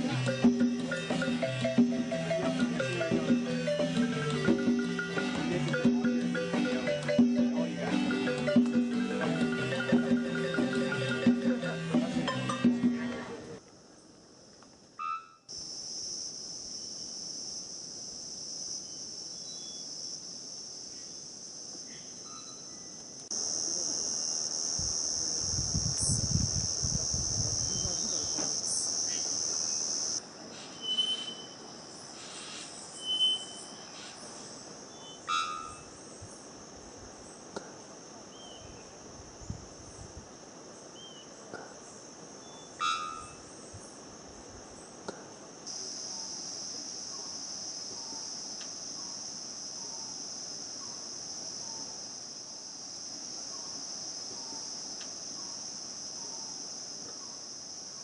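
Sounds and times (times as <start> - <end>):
high-pitched insect drone: 0.0 - 12.6, 15.0 - 32.0, 45.7 - 58.0
whistled bird calls: 30.7 - 31.6, 32.9 - 34.0.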